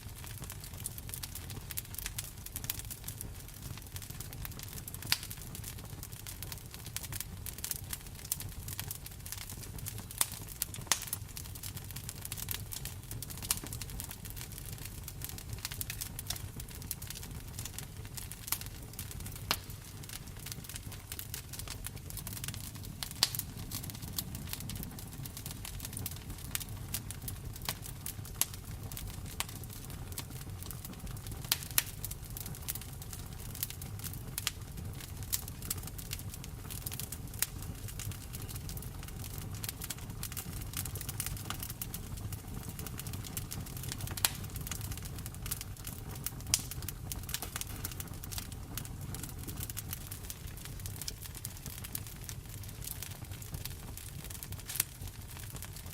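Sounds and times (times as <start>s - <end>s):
wood fire crackling and popping: 0.0s - 55.9s.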